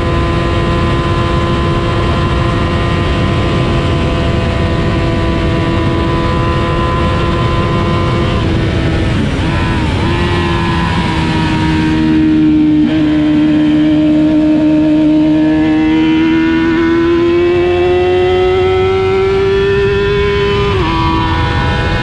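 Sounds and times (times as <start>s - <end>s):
racing motorcycle engine: 0.0s - 22.0s
wind rush on microphone: 0.0s - 22.0s.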